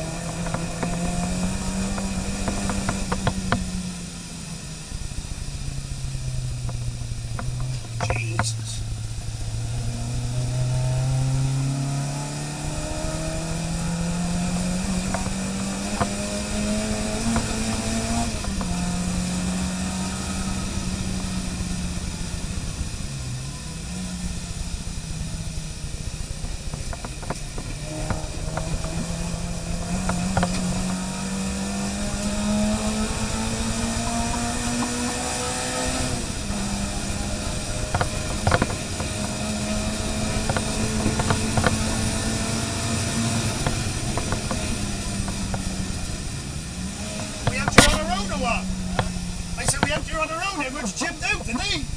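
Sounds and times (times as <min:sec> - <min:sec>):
car engine revving under load: 0:00.0 - 0:51.9
faint clicks: 0:26.2 - 0:31.0.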